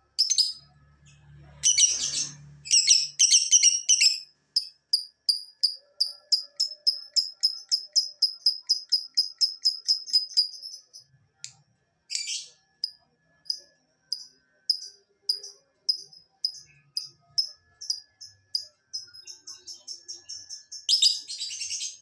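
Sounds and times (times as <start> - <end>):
lovebird chirping: 0.1 - 11.1, 12.1 - 22.0.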